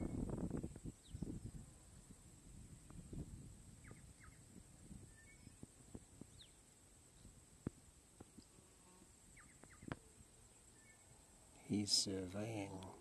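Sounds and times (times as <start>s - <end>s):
soft short bird chirps: 5.0s - 5.6s, 9.4s - 11.2s.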